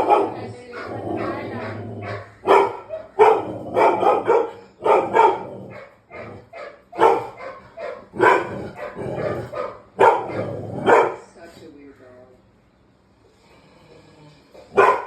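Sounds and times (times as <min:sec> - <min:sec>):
dog barking: 0:00.0 - 0:11.3, 0:14.7 - 0:15.0.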